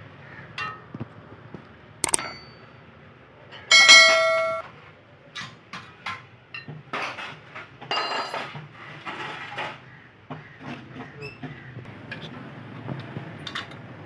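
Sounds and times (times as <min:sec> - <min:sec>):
metal part clanging: 0:02.0 - 0:02.5, 0:03.7 - 0:04.6
hand tools knocking on metal: 0:03.7 - 0:04.6.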